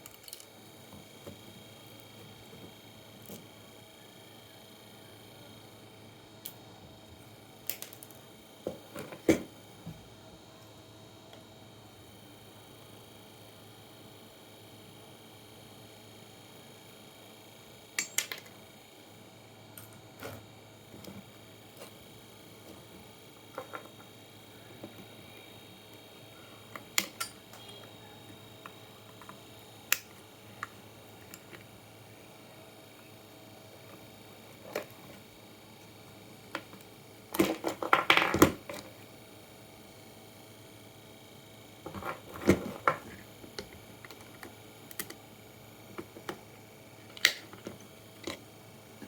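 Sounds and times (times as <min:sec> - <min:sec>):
clicks and knocks of small parts: 0:00.0 - 0:00.5, 0:07.6 - 0:09.4, 0:18.0 - 0:18.6, 0:26.7 - 0:27.6, 0:36.5 - 0:38.9, 0:41.8 - 0:45.2.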